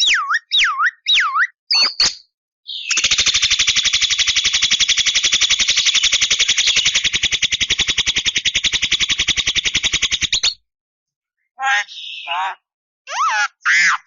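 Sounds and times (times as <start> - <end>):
bird rattling trill: 2.9 - 10.4.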